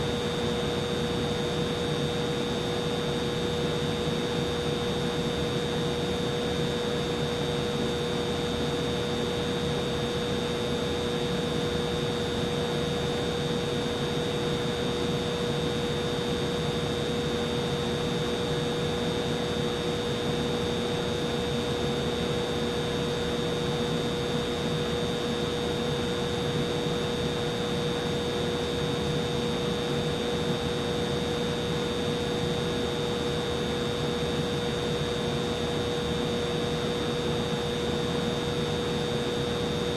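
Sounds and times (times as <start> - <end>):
humidifier running: 0.0 - 39.9.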